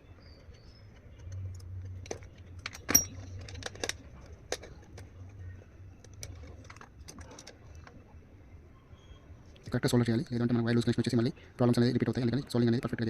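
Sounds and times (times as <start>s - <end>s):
low steady hum: 0.0s - 13.0s
metallic clicks and taps of tools: 0.4s - 5.4s.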